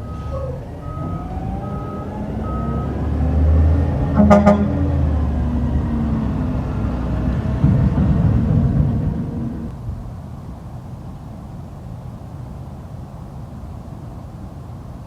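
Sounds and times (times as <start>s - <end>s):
reversing alarm beeping: 0.0s - 3.5s
diesel engine revving: 0.0s - 9.7s
truck horn toot: 4.0s - 5.1s.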